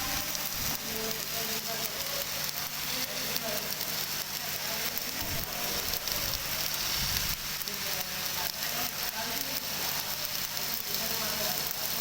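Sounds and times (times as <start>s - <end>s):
arc welding sizzle: 0.0s - 12.0s.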